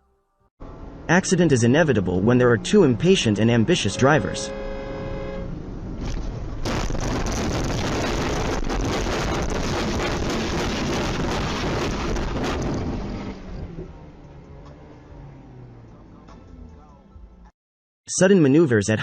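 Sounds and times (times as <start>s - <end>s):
car road and wind noise: 0.6s - 17.5s.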